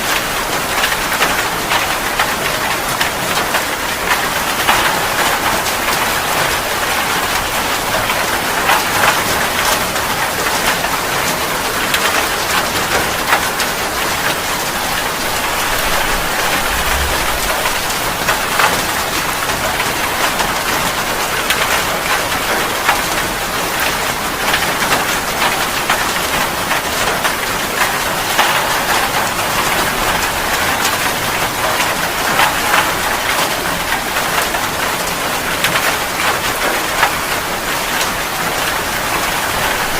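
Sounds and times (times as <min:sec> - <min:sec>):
rain hiss: 0:11.6 - 0:23.7
raindrop hits: 0:11.7 - 0:23.0.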